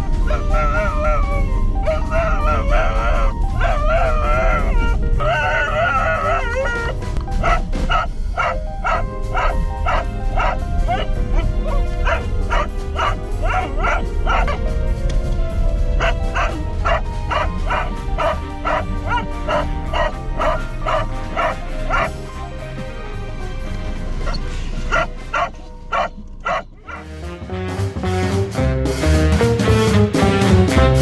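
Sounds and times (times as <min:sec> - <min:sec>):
background music: 0:00.0 - 0:31.0
dog barking: 0:00.1 - 0:14.7, 0:15.8 - 0:22.2, 0:24.2 - 0:27.0.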